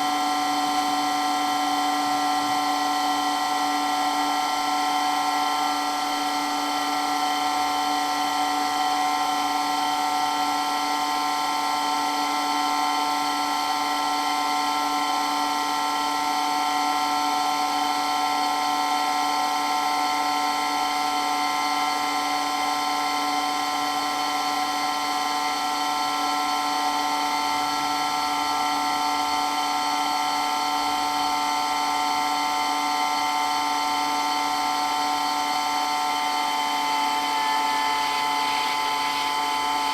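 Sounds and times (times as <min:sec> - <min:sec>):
water pump whining: 0:33.5 - 0:39.9.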